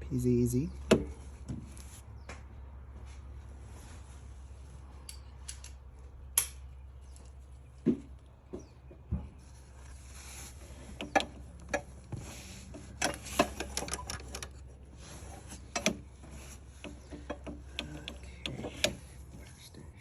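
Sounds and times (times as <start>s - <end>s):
socket wrench clicking: 16.8s - 19.1s.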